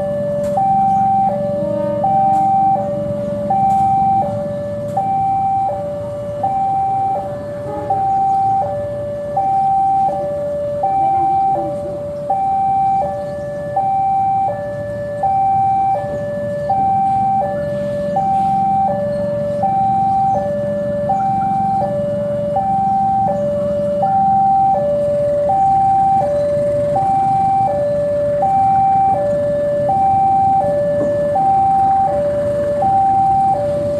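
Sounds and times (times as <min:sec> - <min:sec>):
two-tone electronic alarm: 0:00.0 - 0:33.9.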